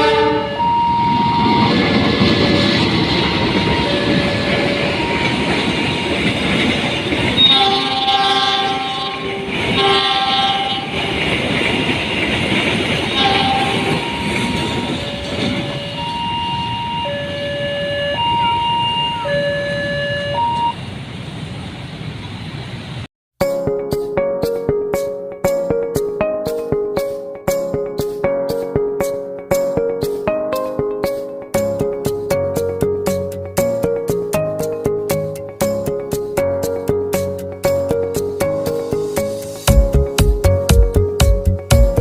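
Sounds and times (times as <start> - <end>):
train horn blasts: 0.0 - 1.8, 7.2 - 11.6, 13.0 - 20.7
two-tone crossing alarm: 0.0 - 20.8
train wheels clattering on rails: 1.0 - 16.8
music: 23.4 - 42.0.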